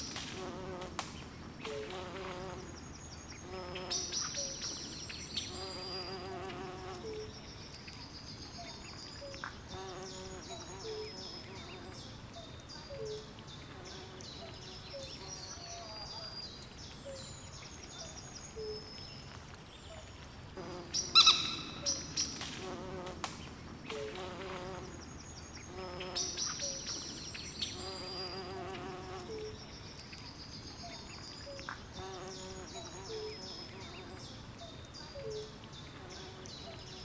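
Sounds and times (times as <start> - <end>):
steady hiss: 0.0 - 12.4, 16.6 - 37.0
frogs calling: 21.1 - 22.1.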